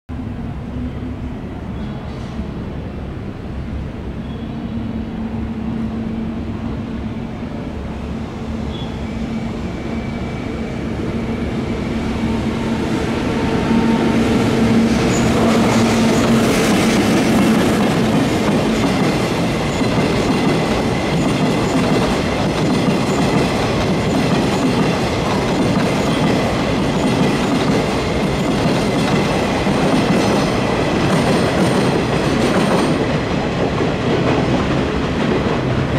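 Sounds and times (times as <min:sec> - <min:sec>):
train rumble: 0:00.1 - 0:35.9
high-pitched wheel squeal: 0:08.6 - 0:10.7, 0:15.0 - 0:15.9
wheels clacking over rail joints: 0:14.8 - 0:35.9.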